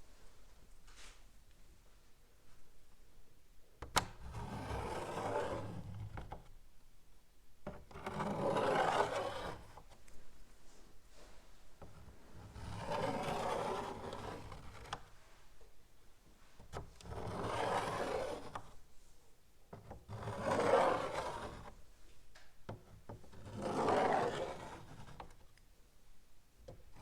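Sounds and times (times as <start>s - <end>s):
chalk scratching on blackboard: 20.2s - 21.8s, 23.4s - 25.4s.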